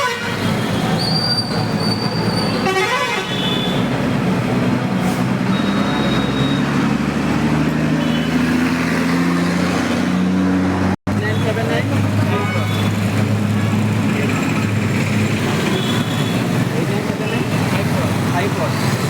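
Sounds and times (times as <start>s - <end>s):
vehicle horns tooting: 0.0s - 3.9s, 5.5s - 6.8s, 7.9s - 8.6s, 12.3s - 13.0s, 15.4s - 16.6s
road traffic: 0.0s - 19.0s.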